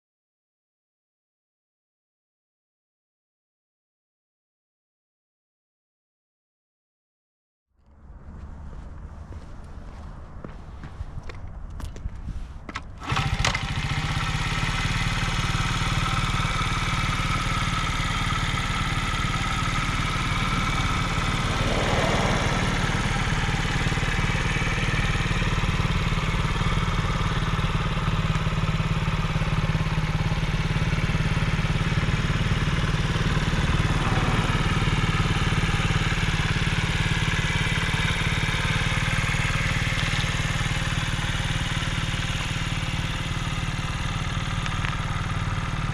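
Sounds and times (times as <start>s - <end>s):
small motorcycle engine idling: 12.9s - 45.9s.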